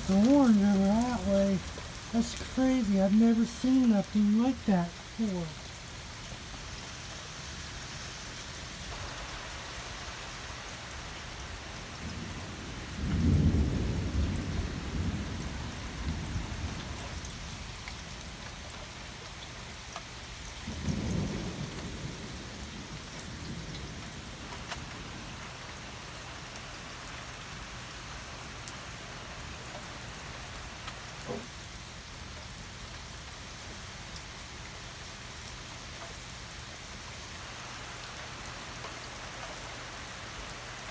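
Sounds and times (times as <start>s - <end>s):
thunder rumbling: 0.0s - 5.8s, 8.9s - 18.2s, 20.7s - 25.6s
steady rain falling: 0.0s - 40.9s.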